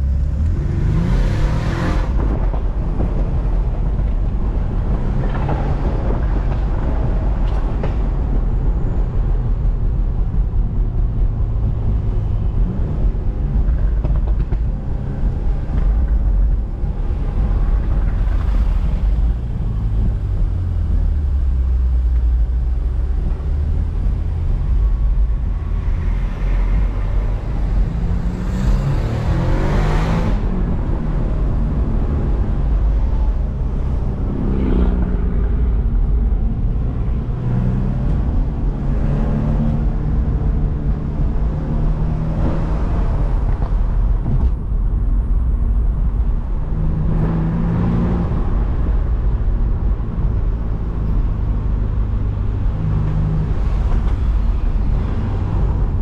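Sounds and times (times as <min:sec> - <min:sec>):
car engine accelerating: 0:00.0 - 0:07.4, 0:10.2 - 0:56.0
wind and road noise: 0:00.0 - 0:56.0.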